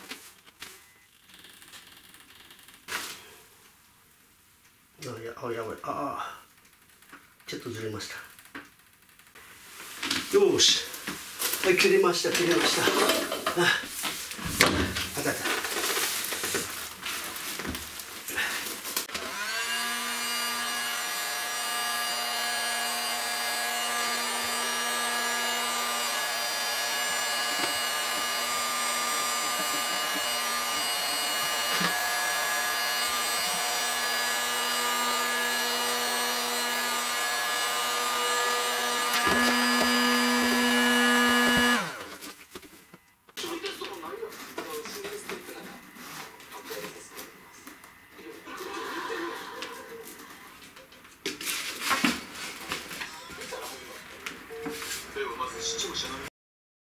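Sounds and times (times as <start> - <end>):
small electric motor whining: 19.0 - 42.2.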